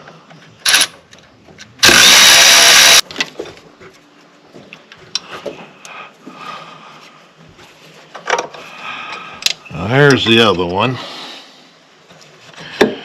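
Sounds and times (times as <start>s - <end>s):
cordless ratchet motor: 0.7s - 0.9s, 1.8s - 3.0s.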